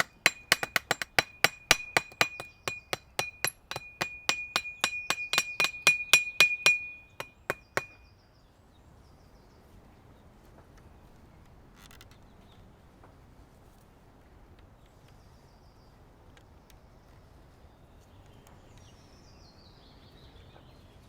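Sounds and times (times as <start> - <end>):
ringing hammer blows: 0.0 - 8.0.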